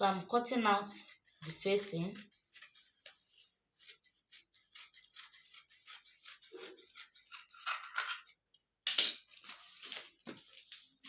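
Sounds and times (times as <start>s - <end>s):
scissors snipping fabric: 0.0s - 8.0s.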